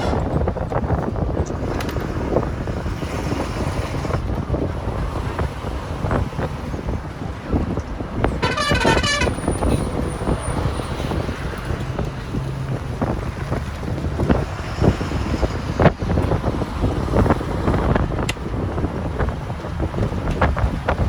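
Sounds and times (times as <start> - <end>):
road traffic: 0.0 - 21.0
wind rumble on microphone: 0.0 - 21.0
vehicle horn: 8.4 - 9.8.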